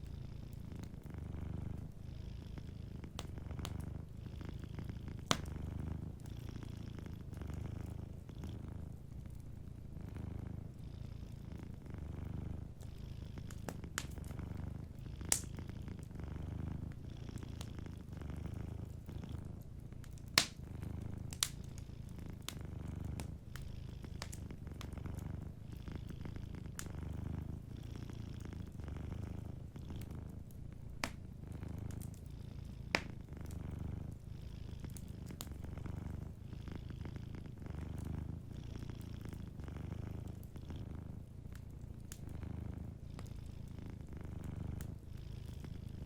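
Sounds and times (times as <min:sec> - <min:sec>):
cat purring: 0:00.0 - 0:46.0
wood fire crackling pops: 0:03.1 - 0:03.9, 0:05.1 - 0:05.6, 0:13.5 - 0:16.0, 0:20.0 - 0:21.8, 0:22.4 - 0:25.3, 0:30.0 - 0:32.2, 0:32.9 - 0:34.1.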